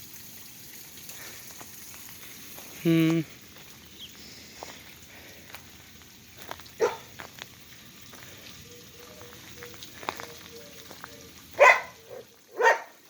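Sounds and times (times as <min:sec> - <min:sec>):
dog barking: 0:06.8 - 0:07.1, 0:11.6 - 0:13.0.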